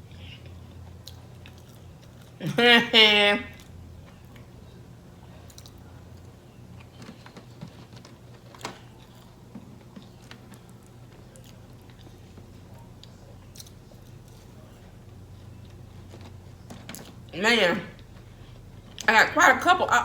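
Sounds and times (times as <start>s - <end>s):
person chewing food: 0.0s - 2.4s, 5.3s - 17.3s.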